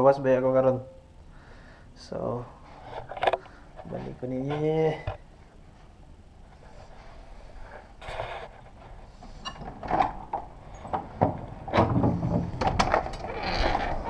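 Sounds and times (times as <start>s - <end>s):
door knocks and clatters: 9.7s - 13.3s.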